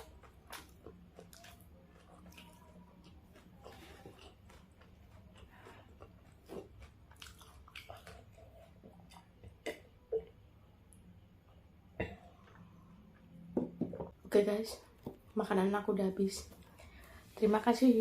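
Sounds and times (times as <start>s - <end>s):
person chewing food: 0.0s - 13.5s.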